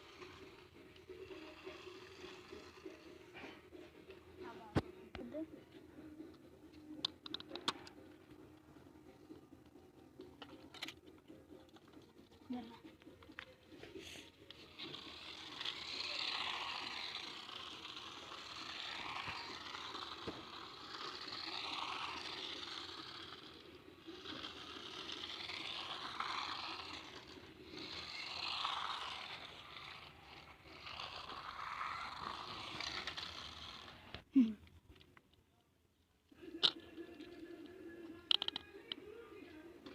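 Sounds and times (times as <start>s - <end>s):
wheels scraping on ground: 0.0s - 4.0s, 14.4s - 34.3s
toy car motor whirring: 0.0s - 5.3s, 10.2s - 35.2s, 36.3s - 39.9s.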